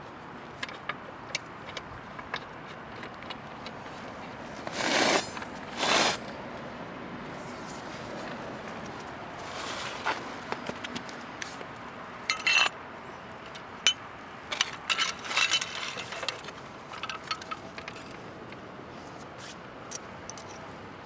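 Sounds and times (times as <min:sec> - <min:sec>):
metal jack clinking and rattling: 0:12.3 - 0:12.7, 0:13.9 - 0:18.2.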